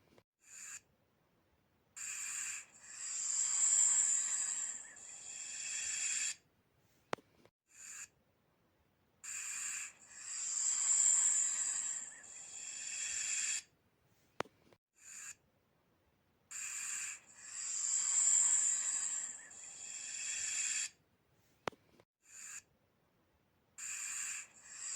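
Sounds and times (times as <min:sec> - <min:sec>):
snake hissing: 0:02.0 - 0:06.4, 0:09.2 - 0:13.7, 0:16.5 - 0:21.0, 0:23.8 - 0:24.9.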